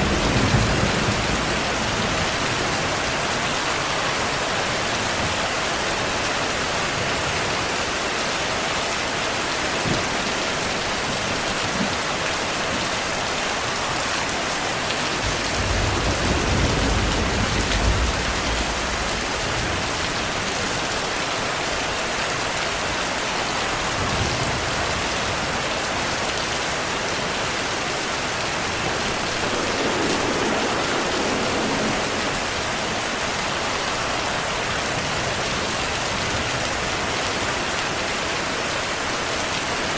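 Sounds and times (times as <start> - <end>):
thunder rumbling: 0.0 - 7.5, 15.0 - 21.2, 26.6 - 37.0
steady rainfall: 0.0 - 39.9.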